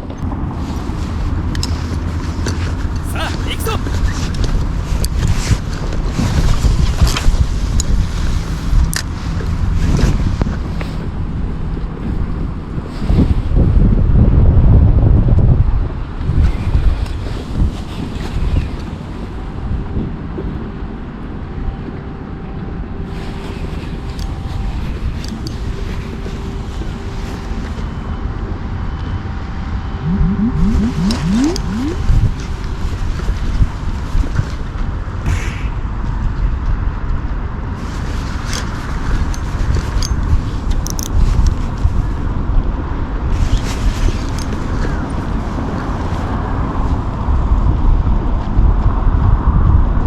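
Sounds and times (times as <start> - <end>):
faint hum: 30.0 - 32.2.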